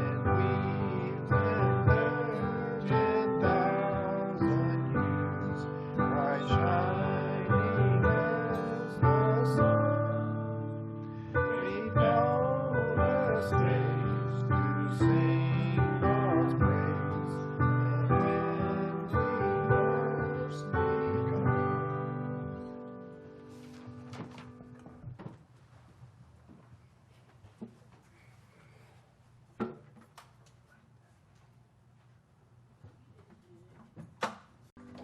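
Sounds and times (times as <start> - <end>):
person singing: 0.0 - 22.7.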